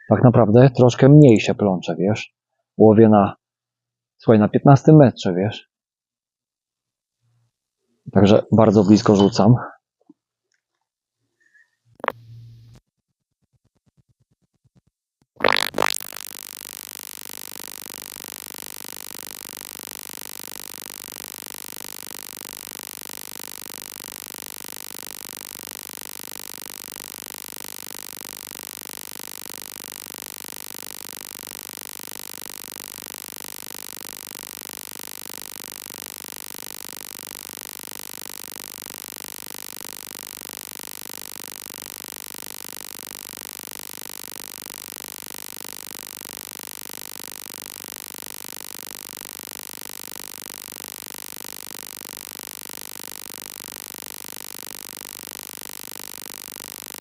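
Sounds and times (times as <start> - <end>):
buzzing electronic hiss: 11.8 - 12.8, 15.4 - 57.0.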